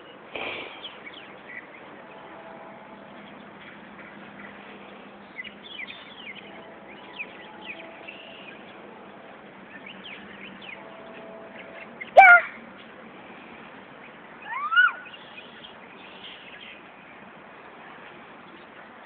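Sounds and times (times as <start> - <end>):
outdoor hiss: 0.0 - 1.3
small birds chirping: 0.0 - 13.0, 13.6 - 19.0
loud high-pitched cry: 12.2 - 12.6, 14.4 - 15.1.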